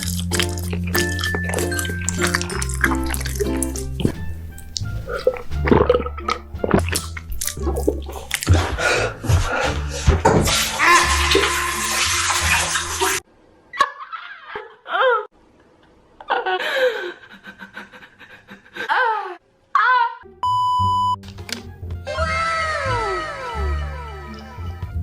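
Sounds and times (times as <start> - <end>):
music: 0.0 - 13.1, 20.2 - 25.0
censor beep: 20.4 - 21.2.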